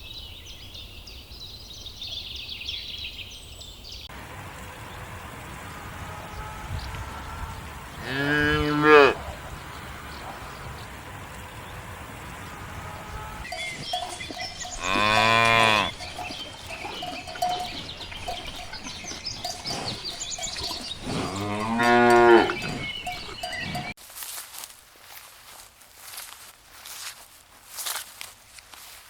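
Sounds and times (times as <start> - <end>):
cow mooing: 6.1 - 10.6, 12.7 - 23.9
cowbells clinking: 13.4 - 24.0.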